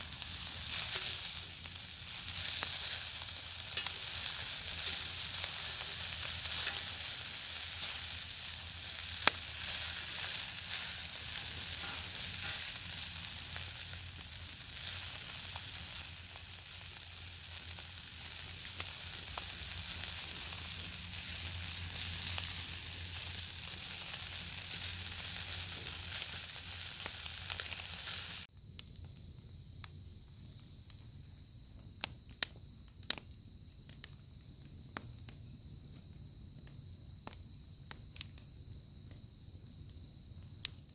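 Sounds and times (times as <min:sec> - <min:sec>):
steady high hiss: 0:00.0 - 0:28.5
bacon sizzling over a fire: 0:00.0 - 0:40.9.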